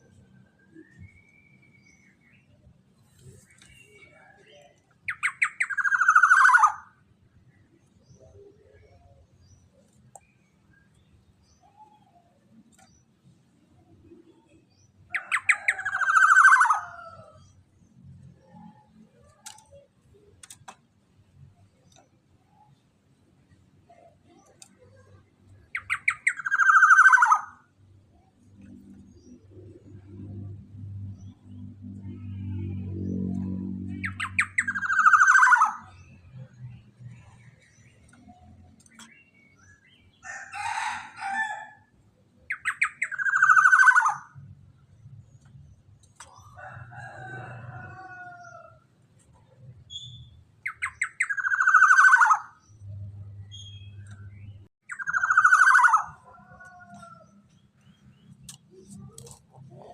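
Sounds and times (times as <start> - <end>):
bird call of rapid notes: 34.0 - 35.9, 54.9 - 56.2
faint clicks: 38.0 - 39.2.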